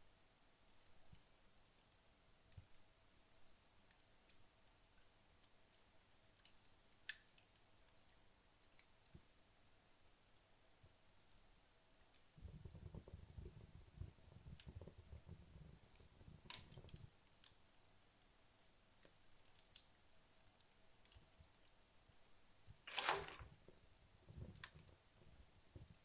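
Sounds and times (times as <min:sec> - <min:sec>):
logs crackling in fireplace: 0:00.5 - 0:09.4, 0:10.7 - 0:26.0
low flutter of flames: 0:12.4 - 0:17.2.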